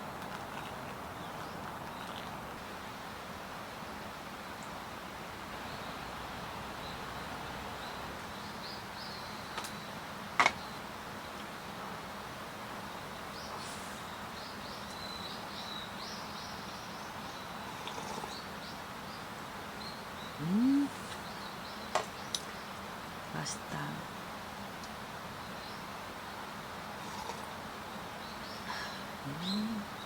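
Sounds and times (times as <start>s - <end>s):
steady background hiss: 0.0s - 30.0s
small birds chirping: 0.5s - 2.4s, 12.8s - 30.0s.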